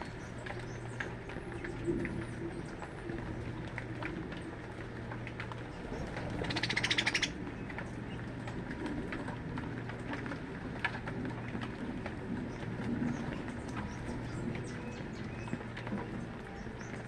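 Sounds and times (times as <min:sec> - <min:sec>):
birds calling: 0:05.6 - 0:08.3.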